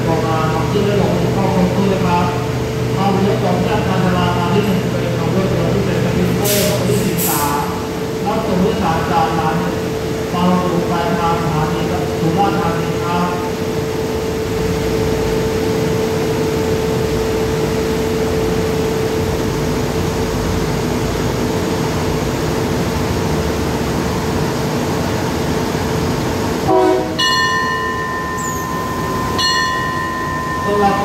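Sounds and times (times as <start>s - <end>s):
diesel train engine humming: 0.0s - 31.0s
higher two-note tone: 26.7s - 31.0s.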